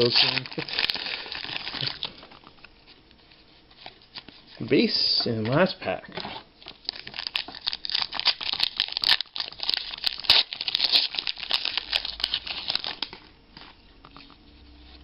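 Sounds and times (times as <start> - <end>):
wrapper tearing and crinkling: 0.0 - 2.5, 6.7 - 13.3.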